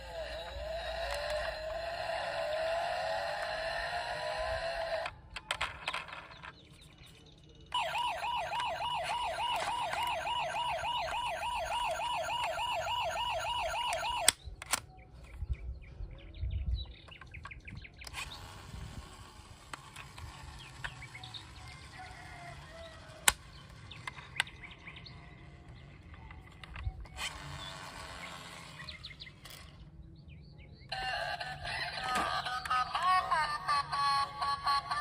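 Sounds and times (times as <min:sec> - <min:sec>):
toy siren warbling: 0:00.0 - 0:05.1, 0:07.7 - 0:14.4, 0:30.9 - 0:35.0
clicks and handling noises: 0:05.0 - 0:07.3, 0:08.5 - 0:10.3, 0:13.8 - 0:15.5.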